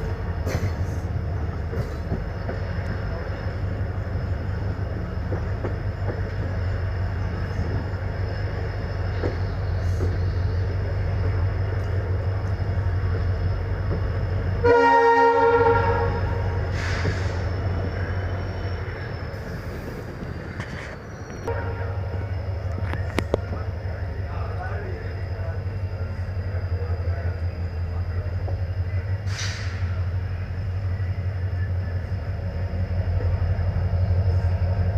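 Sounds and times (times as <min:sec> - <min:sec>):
train rumbling: 0:00.0 - 0:34.9
train horn blast: 0:14.6 - 0:16.6, 0:21.5 - 0:22.2.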